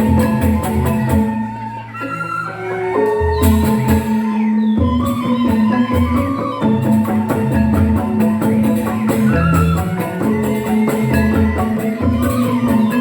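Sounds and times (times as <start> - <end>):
bamboo xylophones interlocking: 2.8 - 13.0.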